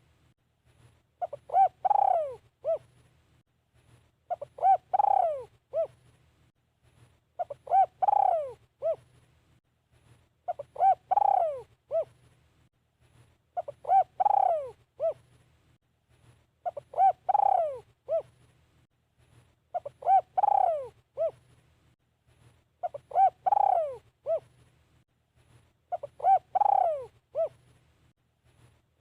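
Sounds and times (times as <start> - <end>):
dove cooing: 1.2 - 2.9, 4.3 - 6.0, 7.4 - 9.1, 10.5 - 12.2, 13.6 - 15.2, 16.6 - 18.4, 19.7 - 21.4, 22.8 - 24.5, 25.9 - 27.6.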